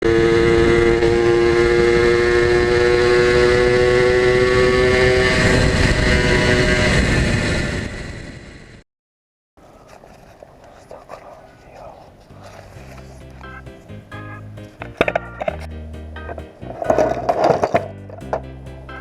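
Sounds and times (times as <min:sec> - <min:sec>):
two-stroke engine revving high: 0:00.0 - 0:08.2.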